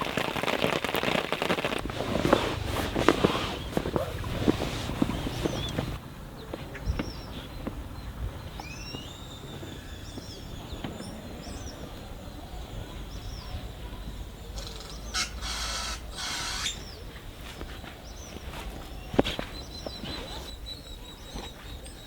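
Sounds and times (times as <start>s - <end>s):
forest stream rushing: 0.0s - 6.0s
songbirds chirping: 1.7s - 22.0s.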